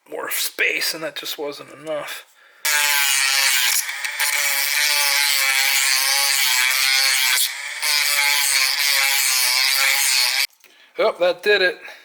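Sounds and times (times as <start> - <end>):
rotary tool grinding plastic: 2.7 - 10.5.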